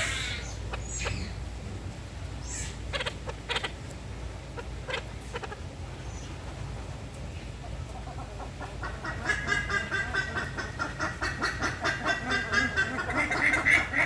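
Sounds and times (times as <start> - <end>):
parakeets squawking: 0.0 - 1.4, 2.4 - 3.8, 8.6 - 14.0
steady low hum: 0.0 - 14.0.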